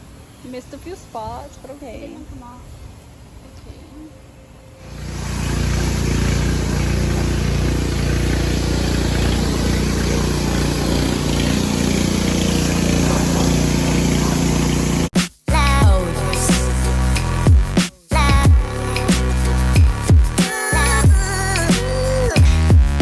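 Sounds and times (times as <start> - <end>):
pressure washer motor humming: 4.8 - 15.1
water spray hiss: 4.8 - 15.1.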